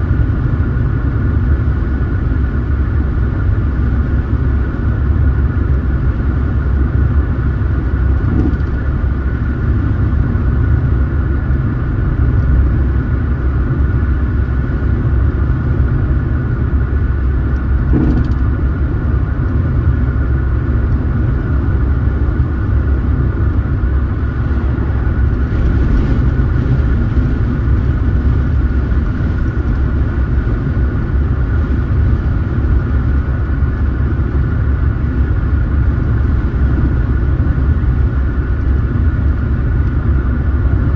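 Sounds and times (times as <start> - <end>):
road and engine rumble: 0.0 - 40.9
brief knock: 17.9 - 18.4.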